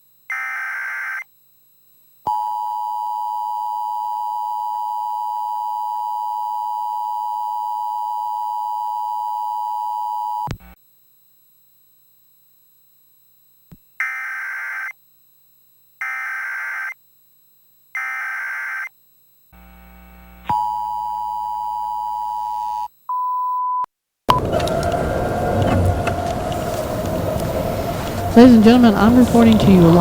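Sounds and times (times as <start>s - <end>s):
short beep: 23.1s - 23.9s
loud noisy outdoor sound: 24.3s - 30.0s.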